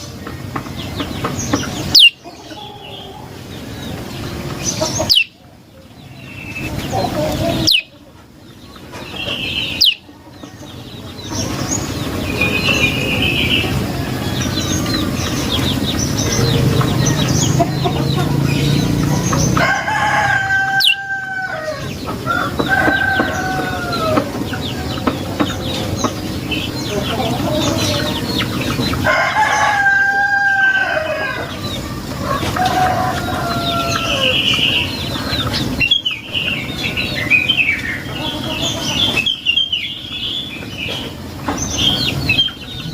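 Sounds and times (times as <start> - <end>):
songbird chattering: 0.8 - 19.6
rooster crowing: 16.2 - 24.4, 29.0 - 35.0.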